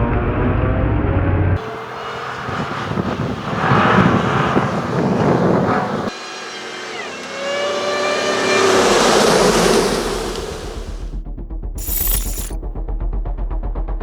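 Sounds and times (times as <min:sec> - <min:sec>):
engine running and revving: 0:00.0 - 0:11.1.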